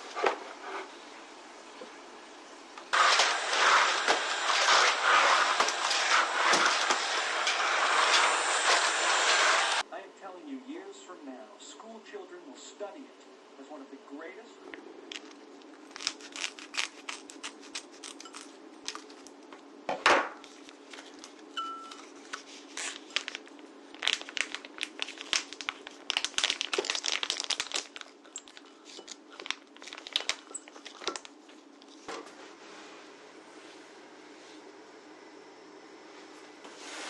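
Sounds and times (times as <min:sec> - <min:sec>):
plastic wrapping crinkling: 0:15.1 - 0:19.4, 0:20.4 - 0:32.1.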